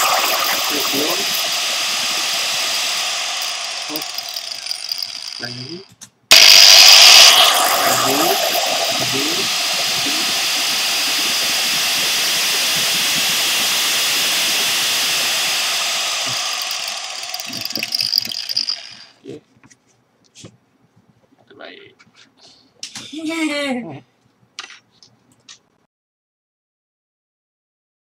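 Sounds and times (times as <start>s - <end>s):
angle grinder motor whining: 0.0s - 19.2s.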